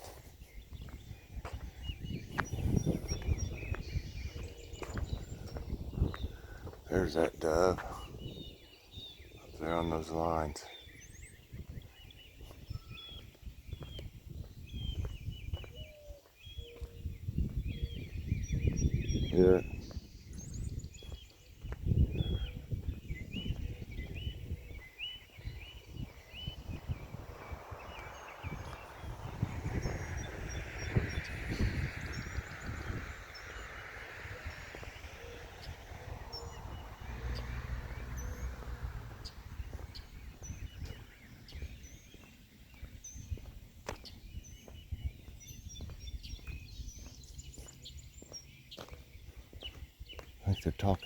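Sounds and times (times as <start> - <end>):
low rumble on microphone: 0.0 - 7.1, 10.6 - 50.5
small birds chirping: 0.0 - 51.0
low outdoor rumble: 25.5 - 41.2.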